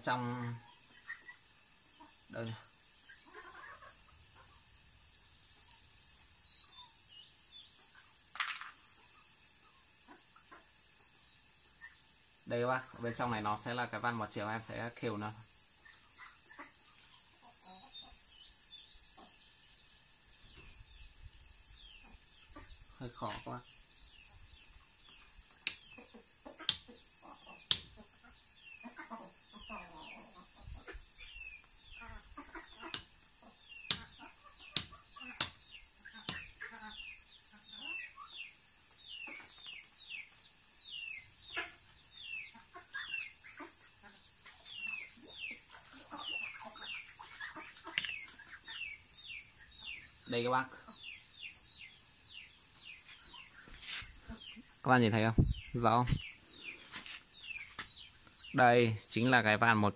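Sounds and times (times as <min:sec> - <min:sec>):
high insect drone: 0:00.0 - 0:45.5
birds chirping: 0:00.0 - 0:59.9
steady high hiss: 0:00.0 - 0:59.9.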